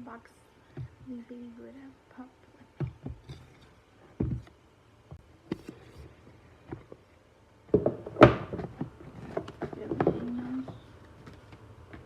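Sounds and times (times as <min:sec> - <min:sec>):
dull thump: 0:04.2 - 0:05.2.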